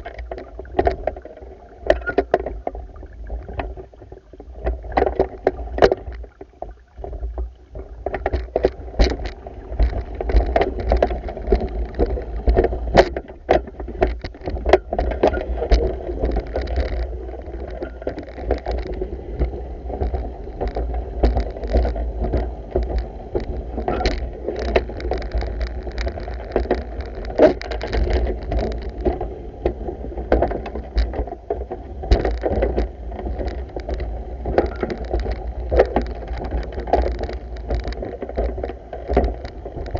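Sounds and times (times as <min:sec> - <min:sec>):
pool water sloshing and splashing: 0:00.0 - 0:30.2
small knocks: 0:00.0 - 0:39.9.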